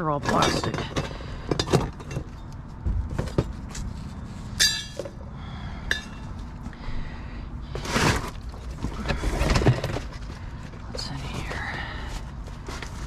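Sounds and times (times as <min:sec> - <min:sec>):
scrap clinking in a dumpster: 0:00.0 - 0:02.5
ringing metal clink: 0:04.6 - 0:05.1.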